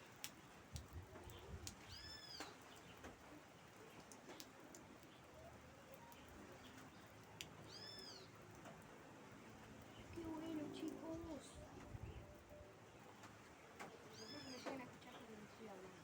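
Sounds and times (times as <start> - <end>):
faint rain: 0.0 - 16.0
drip ticks: 0.2 - 3.2, 3.9 - 7.6, 8.4 - 8.9.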